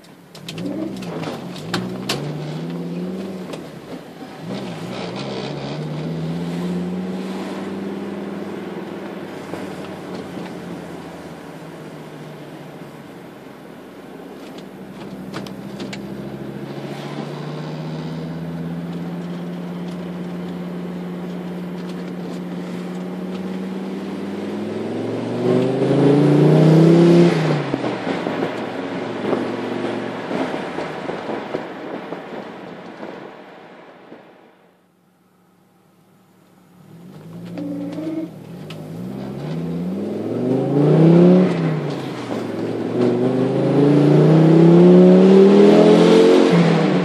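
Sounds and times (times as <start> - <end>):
car engine revving: 0.0 - 33.5, 36.0 - 47.0.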